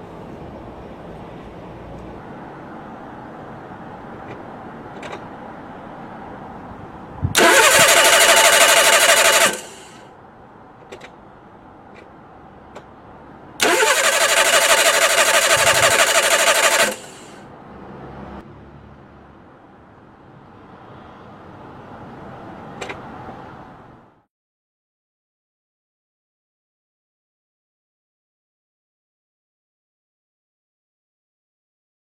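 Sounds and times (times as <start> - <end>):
engine starter cranking: 7.4 - 10.0, 13.6 - 17.4.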